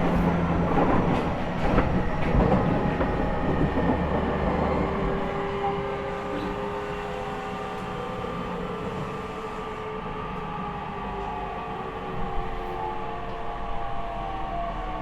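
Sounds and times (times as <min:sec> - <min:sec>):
wheel and rail rumble: 0:00.0 - 0:09.7.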